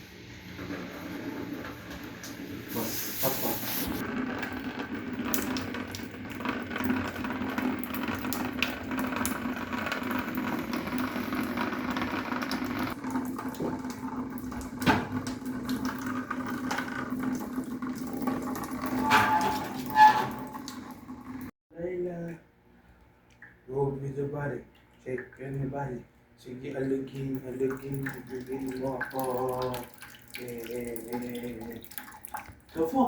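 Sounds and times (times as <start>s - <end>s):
liquid flowing through tubing: 0.0s - 21.5s, 26.7s - 33.0s
short hiss: 2.7s - 4.0s.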